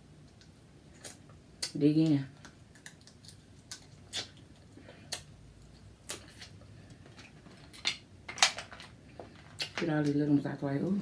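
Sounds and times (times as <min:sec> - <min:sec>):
crab shells cracking: 0:07.2 - 0:09.8.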